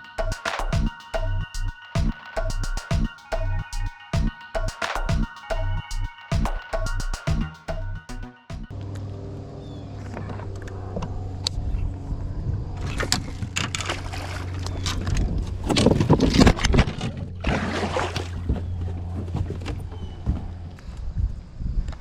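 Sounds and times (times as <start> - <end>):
low motor hum: 0.2 - 21.5.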